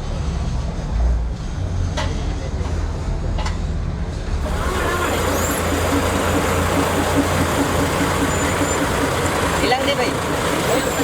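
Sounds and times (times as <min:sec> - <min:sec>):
engine running with pulsing hum: 0:04.2 - 0:11.0.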